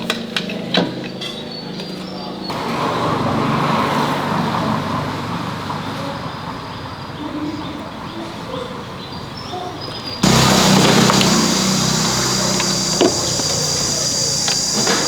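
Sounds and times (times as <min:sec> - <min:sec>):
vehicle engine running: 0:10.2 - 0:15.0.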